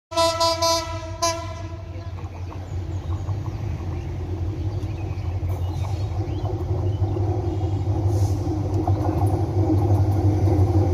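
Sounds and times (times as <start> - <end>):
train horn blasts: 0.1 - 2.1
train rumbling: 0.1 - 10.9.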